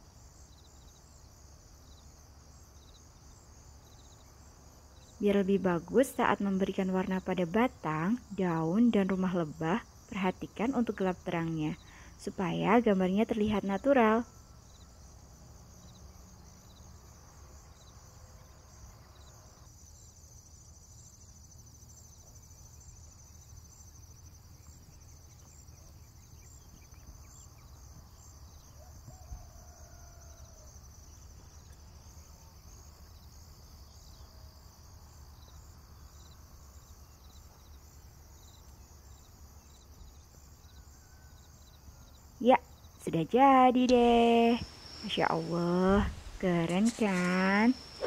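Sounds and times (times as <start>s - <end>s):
crickets chirping: 0.0s - 48.0s.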